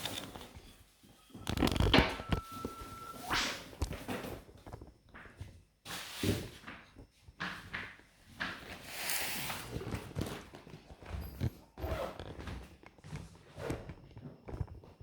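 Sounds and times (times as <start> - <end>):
rustling of belongings: 0.0 - 15.0.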